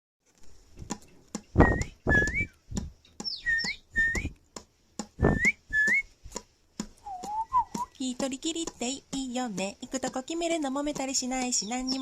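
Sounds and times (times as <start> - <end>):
percussive beat of clicks: 0.8 - 12.0
whistled melody: 1.6 - 2.6, 3.2 - 4.4, 5.2 - 6.1, 7.0 - 7.9.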